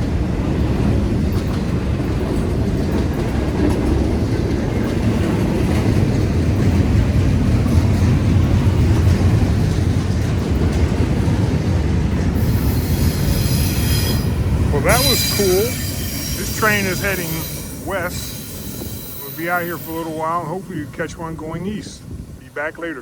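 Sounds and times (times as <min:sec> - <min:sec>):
train wheels rumbling on rails: 0:00.0 - 0:23.0
high hiss: 0:12.4 - 0:21.6.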